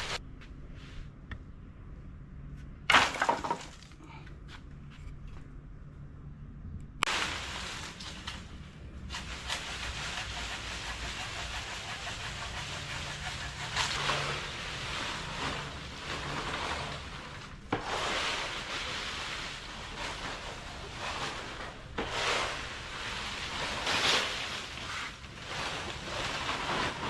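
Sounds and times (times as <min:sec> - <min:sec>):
dry leaves rustling: 0:00.0 - 0:00.2, 0:07.1 - 0:12.6, 0:13.2 - 0:27.0.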